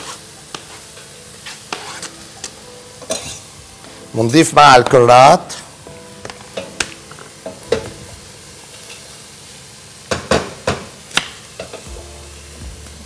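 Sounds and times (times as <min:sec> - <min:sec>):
onion sizzling in a pot: 0:00.0 - 0:13.0.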